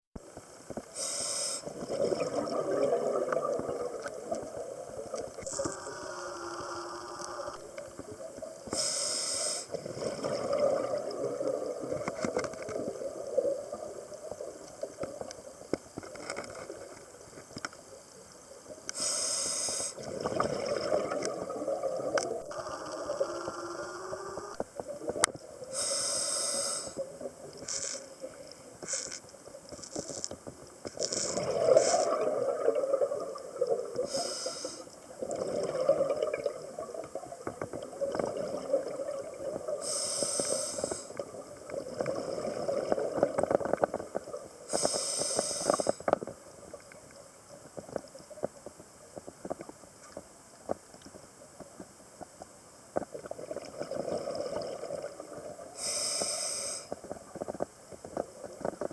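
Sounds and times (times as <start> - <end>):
bubbles gurgling: 1.6 - 8.5, 9.7 - 15.2, 20.0 - 25.2, 31.0 - 39.9, 41.1 - 44.7, 53.1 - 55.8
diver breathing through regulator: 8.7 - 9.9, 19.0 - 20.1, 25.7 - 27.0, 34.0 - 34.9, 39.8 - 41.2, 44.7 - 46.0, 55.8 - 57.0.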